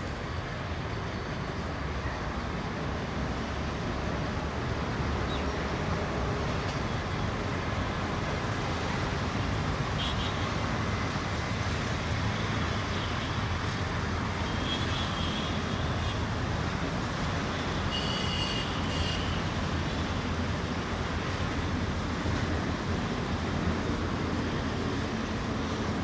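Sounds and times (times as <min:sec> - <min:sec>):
freight train rolling on track: 0:00.0 - 0:12.8, 0:19.4 - 0:26.0
distant traffic: 0:00.0 - 0:26.0.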